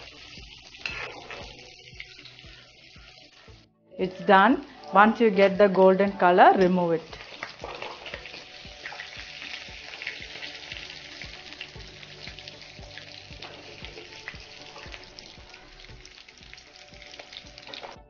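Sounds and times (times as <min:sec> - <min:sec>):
ghee sizzling: 0:00.0 - 0:18.0
metal spoon scraping pan: 0:00.8 - 0:01.8.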